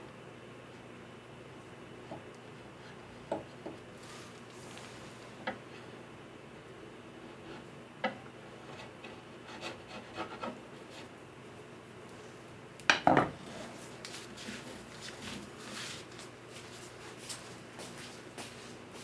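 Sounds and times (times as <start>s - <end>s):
soft rubbing and scraping: 13.4s - 18.8s.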